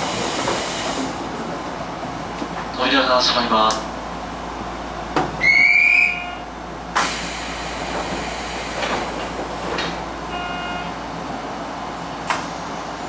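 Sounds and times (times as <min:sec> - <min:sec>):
train hum: 0:00.0 - 0:13.0
pneumatic door air hiss: 0:06.9 - 0:09.3
short beep: 0:10.3 - 0:10.9.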